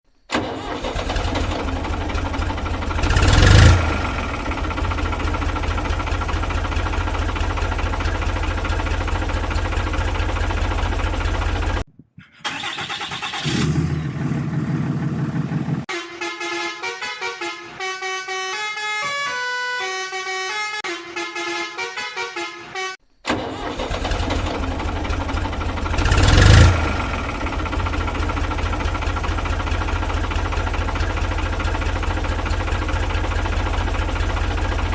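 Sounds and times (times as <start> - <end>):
truck engine running: 0.3 - 22.2, 23.3 - 34.9
truck horn blast: 15.9 - 23.0.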